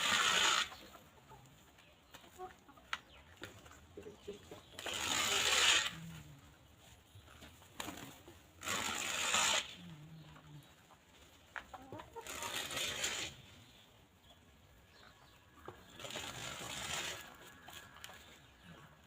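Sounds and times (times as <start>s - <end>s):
hens clucking: 0.0s - 19.0s
rustling: 4.8s - 9.9s, 16.0s - 18.0s.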